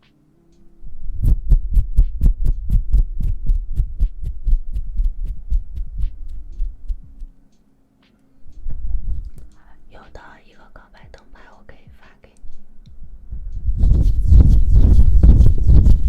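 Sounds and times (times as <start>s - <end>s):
hands tapping on microphone: 1.5s - 7.4s.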